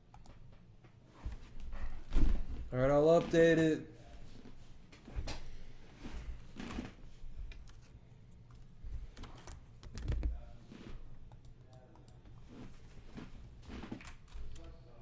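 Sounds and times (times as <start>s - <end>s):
keyboard typing clicks: 8.5s - 10.4s.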